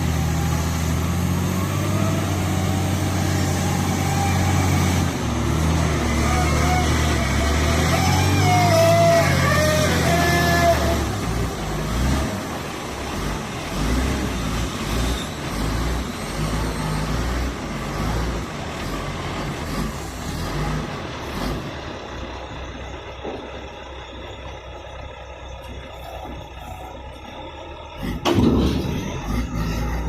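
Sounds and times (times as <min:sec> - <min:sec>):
diesel engine rumbling: 0:00.0 - 0:30.0.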